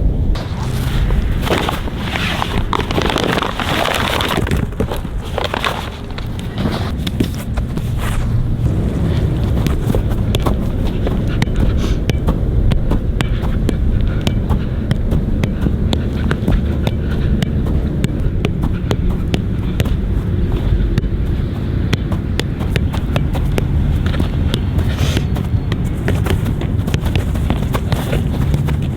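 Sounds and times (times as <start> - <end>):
wind on the microphone: 0.0 - 28.9
running footsteps: 0.4 - 28.9
soccer ball taps: 8.6 - 28.9.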